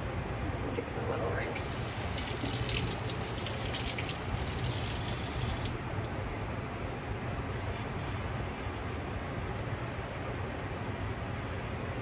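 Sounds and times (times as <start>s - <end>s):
steady low hum: 0.0s - 12.0s
kitchen tap running: 1.6s - 5.8s.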